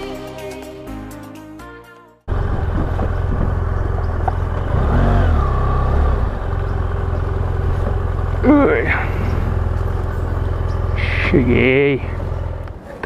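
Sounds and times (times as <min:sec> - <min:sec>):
background music: 0:00.0 - 0:02.3
motorcycle engine at low speed: 0:02.3 - 0:13.0.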